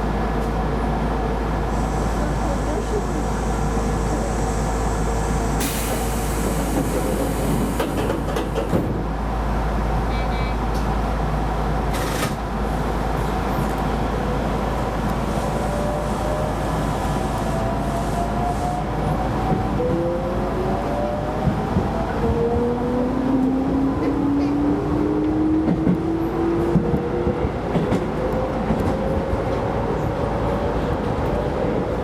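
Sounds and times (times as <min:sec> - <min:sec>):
train rail and running noise: 0:00.0 - 0:32.0
brief hisses: 0:05.6 - 0:08.1.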